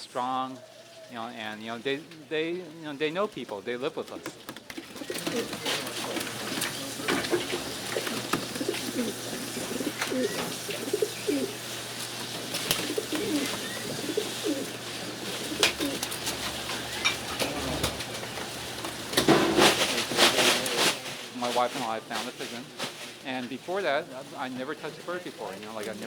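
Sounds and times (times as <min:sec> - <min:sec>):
pigeons cooing: 0:00.4 - 0:20.9.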